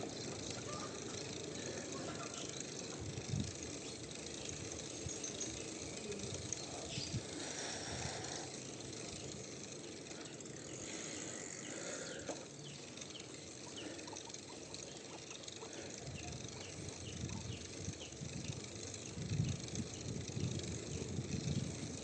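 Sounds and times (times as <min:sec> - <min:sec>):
bicycle rolling and wind noise: 0:00.0 - 0:22.0
bird chirping: 0:03.8 - 0:07.3.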